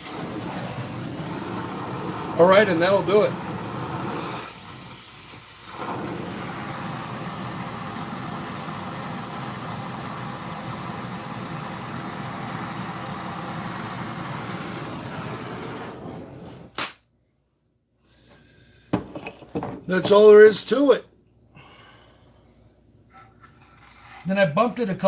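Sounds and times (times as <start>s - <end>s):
torch hissing: 0.0s - 16.9s
sharp click: 16.8s - 17.1s.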